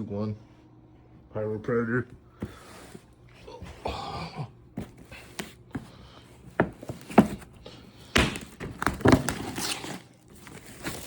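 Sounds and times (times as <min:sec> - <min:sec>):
knocks on cardboard case: 0:04.8 - 0:09.5
scraping rustle: 0:08.5 - 0:11.0.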